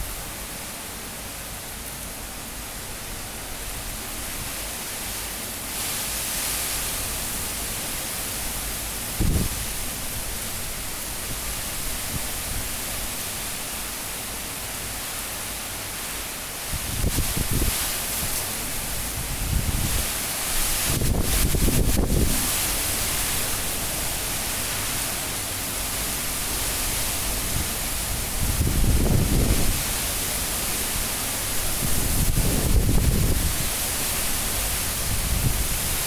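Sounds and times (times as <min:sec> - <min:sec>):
wind buffeting microphone: 0:09.2 - 0:10.3, 0:16.7 - 0:23.4, 0:27.3 - 0:30.0, 0:31.6 - 0:33.8, 0:34.4 - 0:36.0
strong wind hissing: 0:16.6 - 0:36.0.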